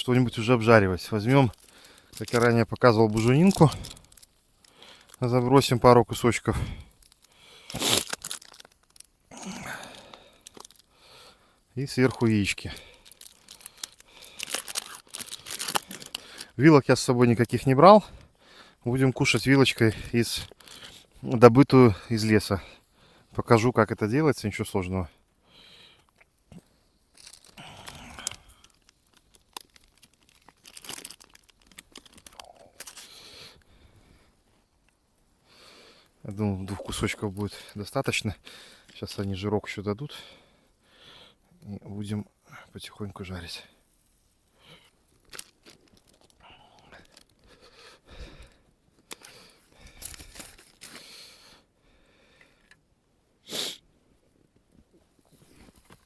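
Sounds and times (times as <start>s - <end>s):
rustling and crunching handling: 0.0s - 22.6s, 26.0s - 35.4s, 42.8s - 51.2s, 54.5s - 56.0s
loud short sniff: 7.6s - 8.1s, 53.4s - 53.8s.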